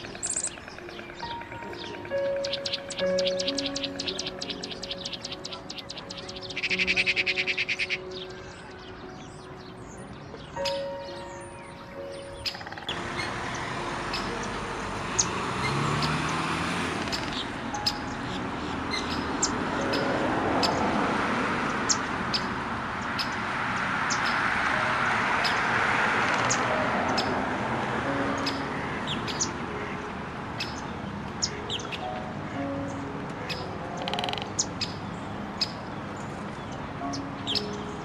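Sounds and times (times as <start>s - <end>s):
small birds chirping: 0.0s - 20.9s, 21.7s - 24.5s, 28.3s - 30.0s, 30.6s - 38.0s.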